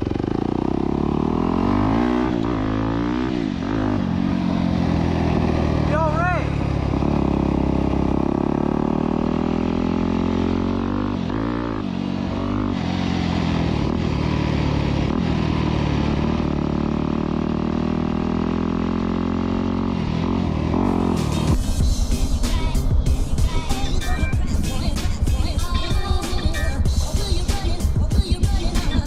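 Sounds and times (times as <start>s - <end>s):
dirt bike engine running: 0.0s - 29.0s.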